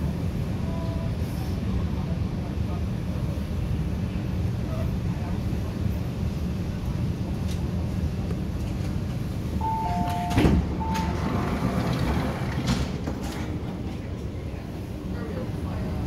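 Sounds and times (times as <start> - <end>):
train running rumble: 0.0 - 16.0
short electronic beeps: 9.6 - 11.2.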